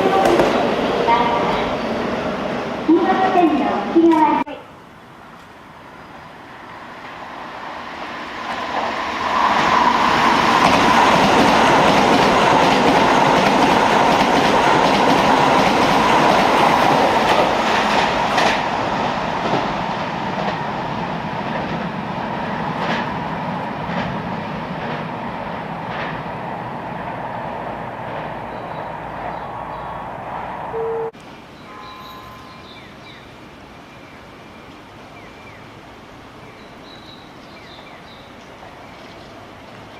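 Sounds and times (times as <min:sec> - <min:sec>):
electric train passing: 0:00.0 - 0:39.9
train wheels clacking over rail joints: 0:00.2 - 0:00.7, 0:09.6 - 0:20.6, 0:25.8 - 0:26.2.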